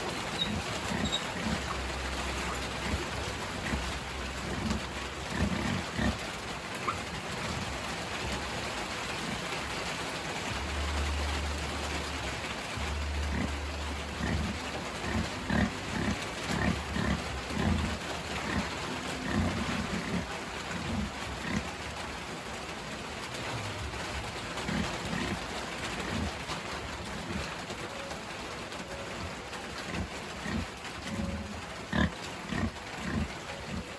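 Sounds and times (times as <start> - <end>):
pig grunting: 0.2 - 8.3, 13.2 - 21.9, 24.6 - 27.6, 29.0 - 33.9.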